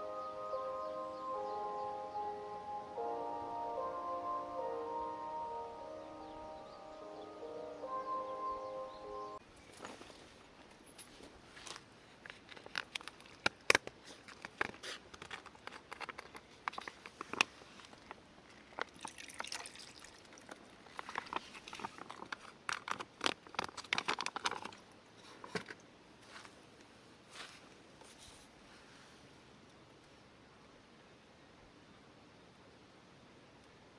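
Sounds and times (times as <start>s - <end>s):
rustling: 9.6s - 18.9s, 20.4s - 29.4s
small objects clicking and clattering: 12.2s - 19.6s, 20.4s - 24.8s.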